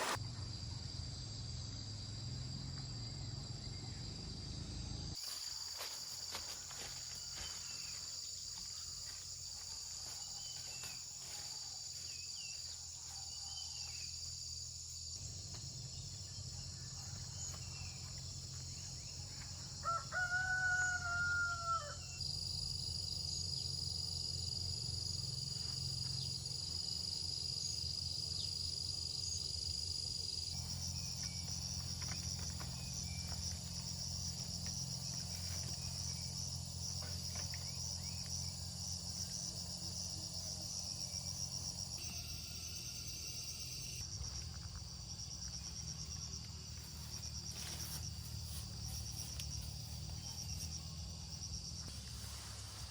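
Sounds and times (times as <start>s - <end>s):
insects buzzing: 0.0s - 52.9s
rooster crowing: 19.6s - 22.2s.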